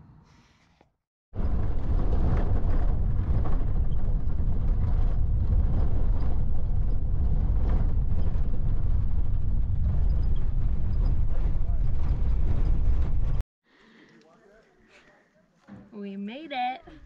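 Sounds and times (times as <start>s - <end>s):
vehicle road and engine rumble: 1.4s - 13.4s.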